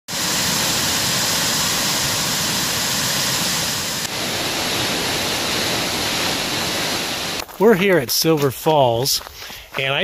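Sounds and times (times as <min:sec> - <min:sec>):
waterfall rushing: 0:00.1 - 0:07.4.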